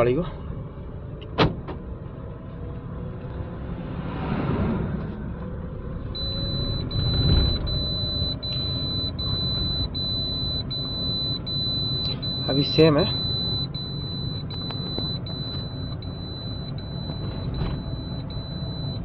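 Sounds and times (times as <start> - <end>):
engine and road rumble: 0.0 - 19.0
high electronic warning chime: 6.1 - 19.0.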